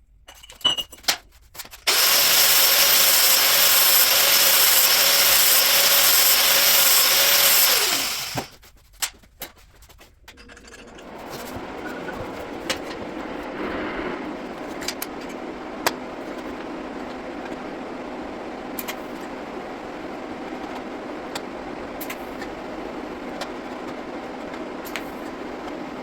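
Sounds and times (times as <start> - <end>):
motor vehicle running: 10.7 - 22.0.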